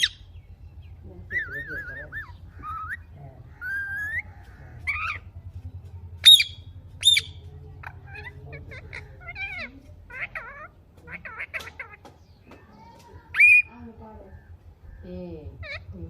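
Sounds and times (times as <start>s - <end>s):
parrots whistling: 0.0s - 0.3s, 1.3s - 5.3s, 6.2s - 12.0s, 13.3s - 13.7s
parrots chattering: 0.0s - 16.0s
parrot screeches: 13.3s - 13.7s.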